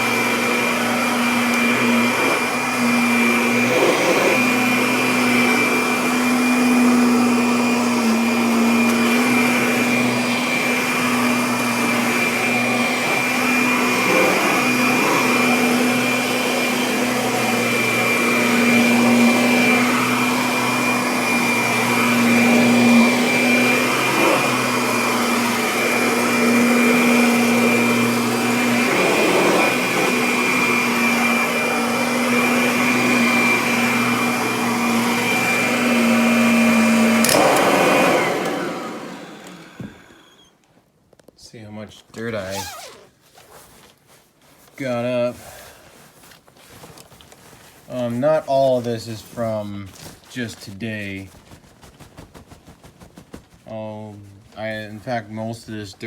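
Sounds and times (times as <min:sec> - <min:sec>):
upright vacuum cleaner running: 0:00.0 - 0:40.5.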